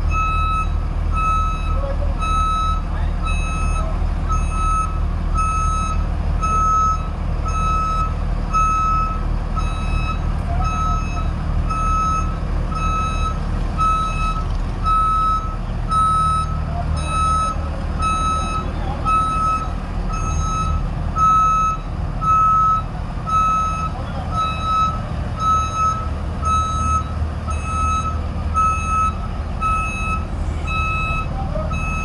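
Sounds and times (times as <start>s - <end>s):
combine harvester engine rumbling: 0.0s - 32.0s
warning beeper: 23.4s - 32.0s.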